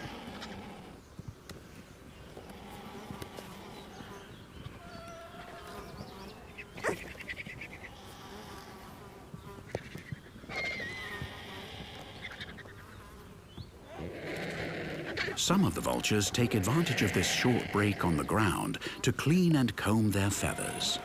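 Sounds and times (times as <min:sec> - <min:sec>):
flies buzzing: 0:00.0 - 0:21.0
outdoor ambience: 0:00.0 - 0:21.0.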